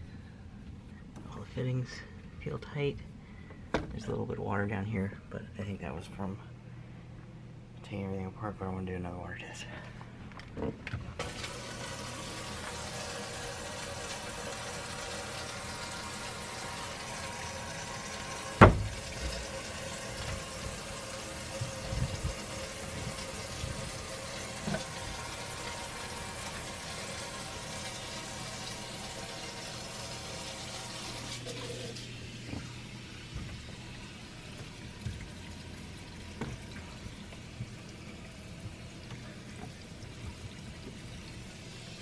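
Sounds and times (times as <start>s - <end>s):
faucet running into sink: 11.2s - 42.0s
loud knock: 18.6s - 19.1s.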